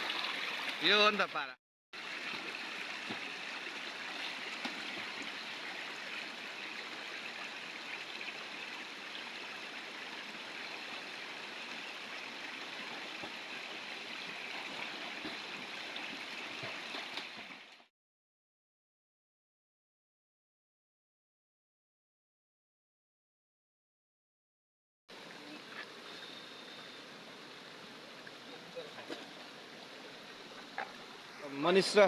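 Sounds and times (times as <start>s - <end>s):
stream flowing over rocks: 0.0s - 1.2s, 2.0s - 17.9s, 25.1s - 32.0s.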